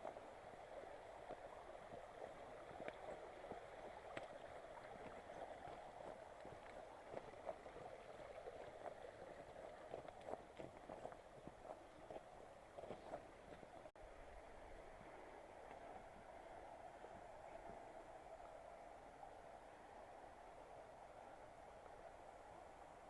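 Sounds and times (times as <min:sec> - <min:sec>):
faint stream over stones: 0:00.0 - 0:23.0
footsteps on rocks: 0:08.6 - 0:13.9.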